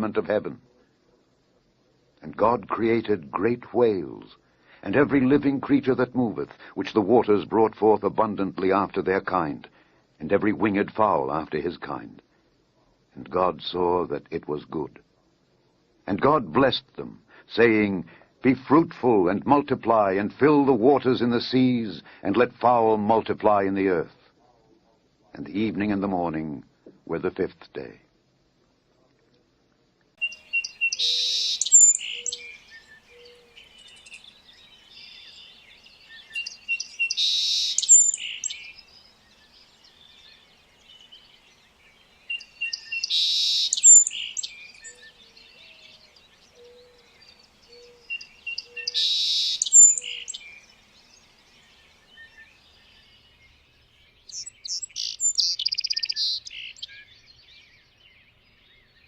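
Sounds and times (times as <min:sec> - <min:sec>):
songbird singing: 0:00.0 - 0:16.7, 0:30.0 - 0:59.0
faint bird chirps: 0:30.1 - 0:59.0.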